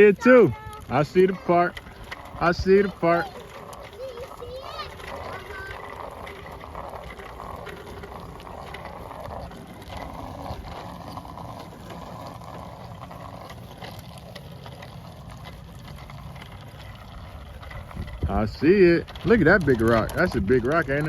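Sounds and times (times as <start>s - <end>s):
bicycle chain clicks: 0.0s - 21.0s
wind and tyres rumbling: 0.0s - 21.0s.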